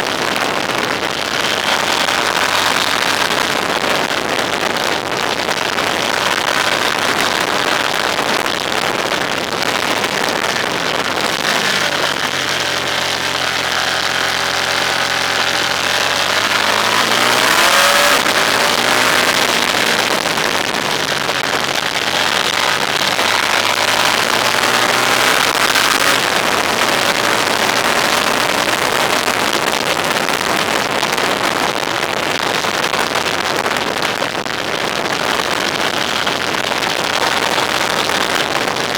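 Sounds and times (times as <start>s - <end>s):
wind and road rush: 0.0s - 38.9s
engine note rising in pitch: 10.2s - 20.6s.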